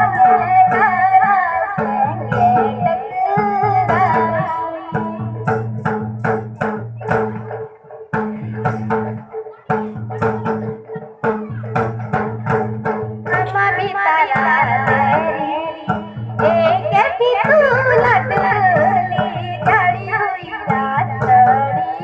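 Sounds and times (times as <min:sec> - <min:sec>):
girl singing: 0:00.0 - 0:05.6, 0:09.5 - 0:12.5, 0:13.3 - 0:22.0.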